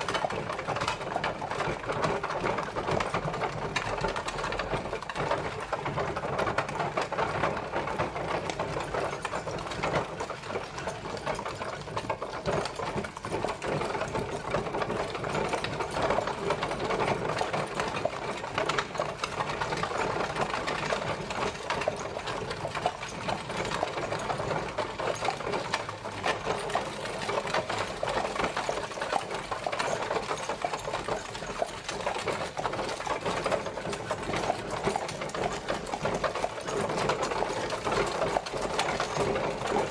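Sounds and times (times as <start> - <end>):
carriage rattling clatter: 0.0 - 39.9.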